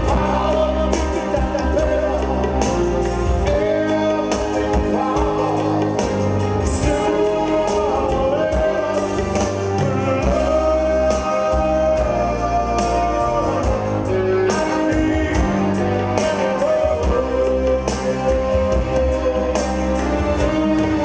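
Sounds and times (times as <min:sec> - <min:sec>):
live rock band playing: 0:00.0 - 0:21.0
male lead vocal: 0:00.0 - 0:21.0.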